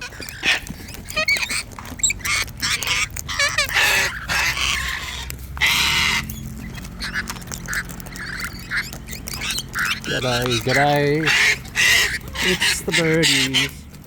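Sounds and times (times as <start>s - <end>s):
cockatoos and parrots squawking: 0.0s - 14.0s.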